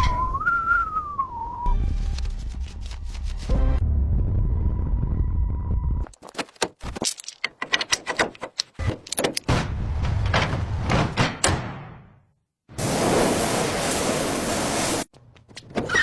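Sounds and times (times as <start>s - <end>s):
toy car parts clicking and rattling: 6.2s - 9.5s.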